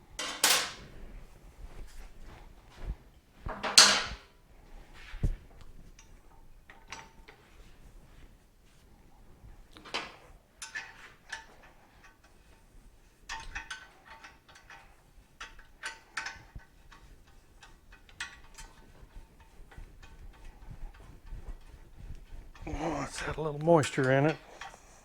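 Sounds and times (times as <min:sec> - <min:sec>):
hand tools clinking on metal: 0:00.2 - 0:00.8, 0:23.0 - 0:24.8.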